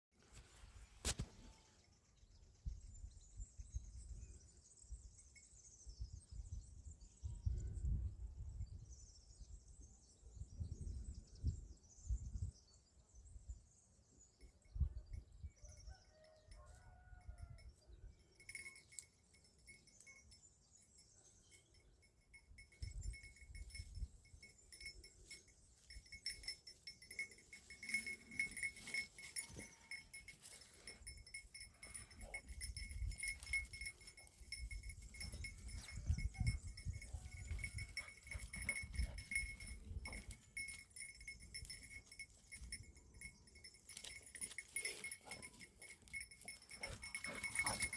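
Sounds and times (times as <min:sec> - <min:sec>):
small bell jingling: 0:14.4 - 0:47.9.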